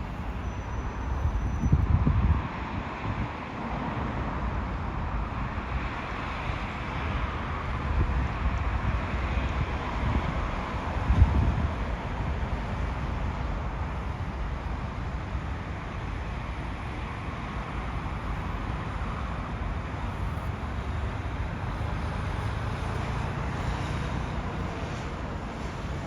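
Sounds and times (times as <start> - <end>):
wind on microphone: 1.0 - 3.4, 7.7 - 14.3
low vehicle rumble: 19.7 - 26.0.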